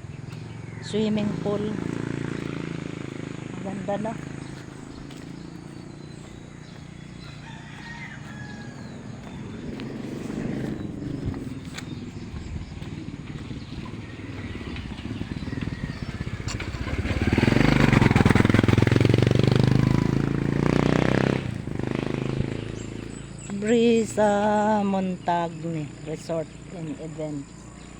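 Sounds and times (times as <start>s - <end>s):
motorbike passing: 0.0s - 27.9s
roosters crowing: 4.2s - 11.3s.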